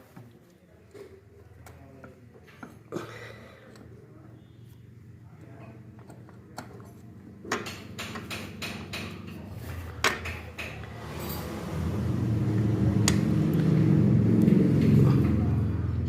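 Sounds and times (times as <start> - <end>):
low hum: 11.0 - 16.0.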